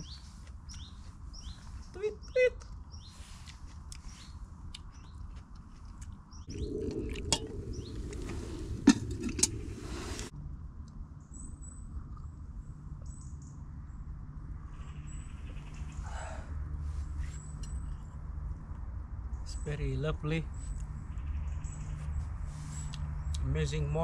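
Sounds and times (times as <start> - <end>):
small birds chirping: 0.0 - 10.3, 19.4 - 24.0.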